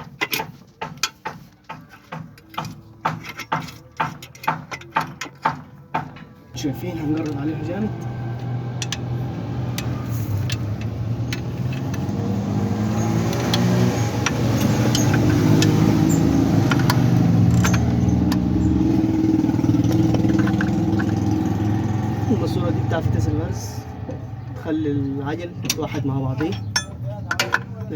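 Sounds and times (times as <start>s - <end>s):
vehicle engine running: 6.6s - 27.9s.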